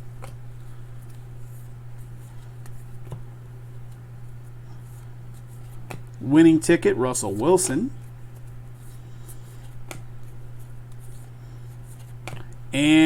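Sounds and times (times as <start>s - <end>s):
trading cards flipped through: 7.6s - 12.6s.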